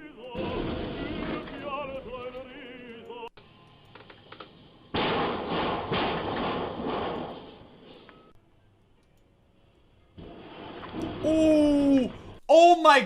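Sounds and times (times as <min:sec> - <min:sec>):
metal bangs: 0:04.9 - 0:07.9
truck roof crashing into bridge: 0:05.0 - 0:07.6.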